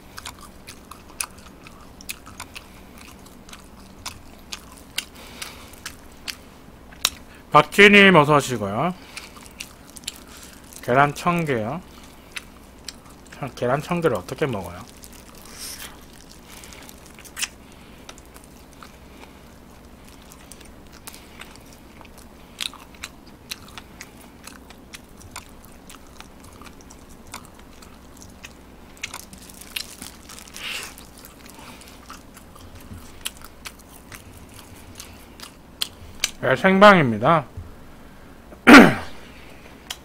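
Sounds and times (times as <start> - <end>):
person chewing crunchy food: 0.0 - 7.5, 8.5 - 36.4.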